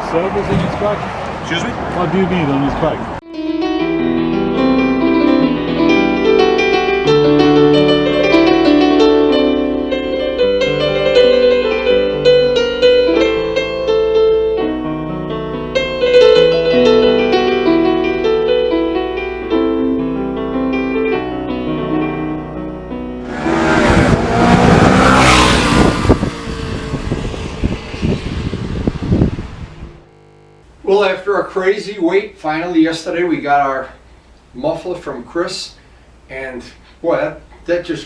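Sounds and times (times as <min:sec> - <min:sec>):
piano music: 0:03.3 - 0:21.0.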